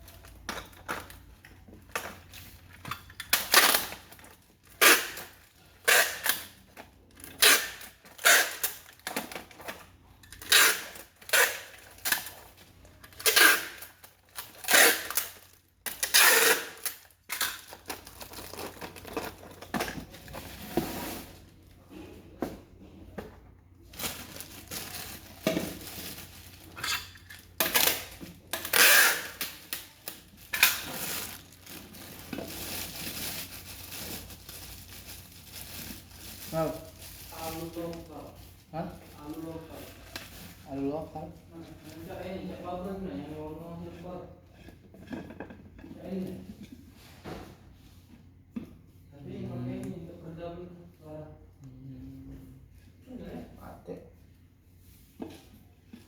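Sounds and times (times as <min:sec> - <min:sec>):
packaging rustling: 0:16.8 - 0:21.5, 0:23.9 - 0:40.7
small parts clattering: 0:24.0 - 0:37.8.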